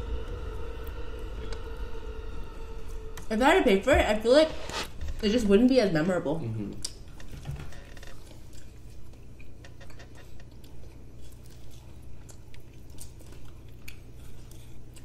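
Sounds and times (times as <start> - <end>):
chewing food with wet smacks: 8.1 - 15.0.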